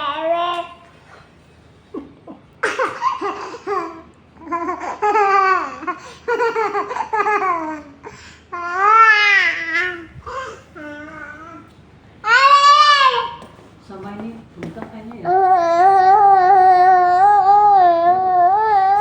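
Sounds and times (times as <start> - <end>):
young child laughing and babbling: 8.6 - 13.4.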